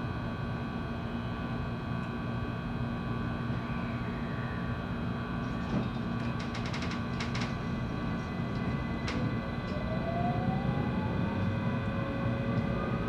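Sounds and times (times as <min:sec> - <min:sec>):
train running rumble: 0:05.2 - 0:13.0
motor whine rising in pitch: 0:09.2 - 0:13.0.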